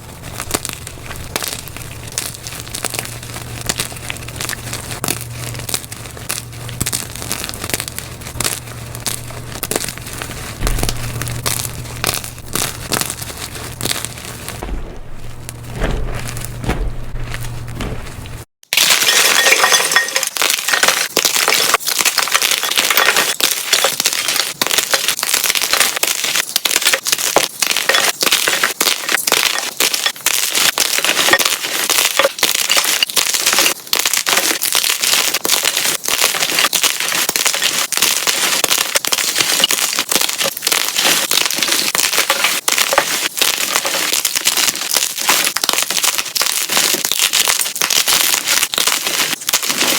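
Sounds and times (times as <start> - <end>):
chalk crunching and crackling: 0.0 - 49.9
low hum: 0.1 - 18.5.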